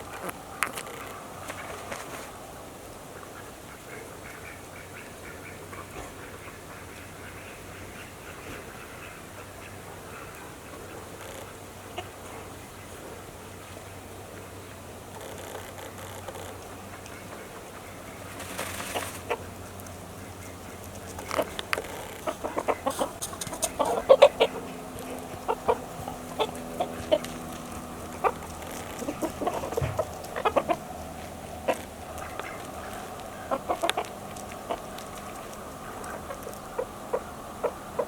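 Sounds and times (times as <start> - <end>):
chickens clucking: 3.1 - 38.0.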